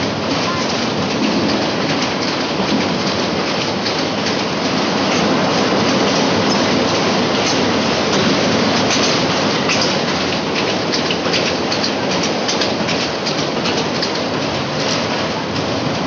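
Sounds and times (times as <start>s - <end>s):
train wheels rushing on rail: 0.0s - 16.0s
faint rail clicks: 0.2s - 16.0s.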